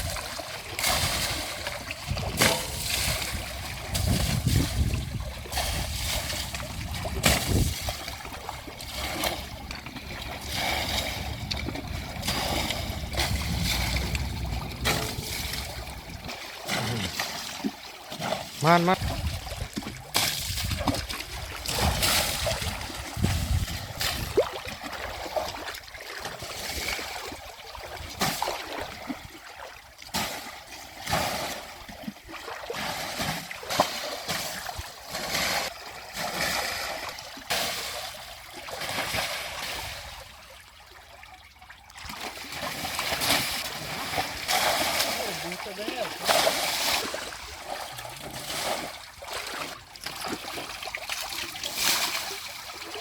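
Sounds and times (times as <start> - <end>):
water splashing and sloshing: 0.0 - 53.0
low rumble: 2.3 - 16.4.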